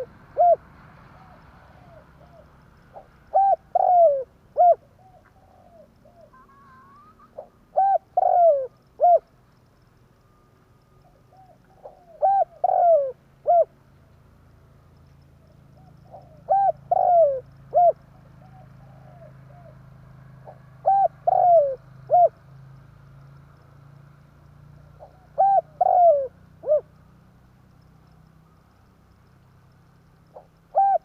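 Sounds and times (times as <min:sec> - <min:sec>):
dove cooing: 0:00.0 - 0:09.3, 0:11.0 - 0:13.8, 0:15.8 - 0:22.4, 0:25.0 - 0:27.0, 0:30.3 - 0:31.0
faint low hum: 0:00.0 - 0:31.0.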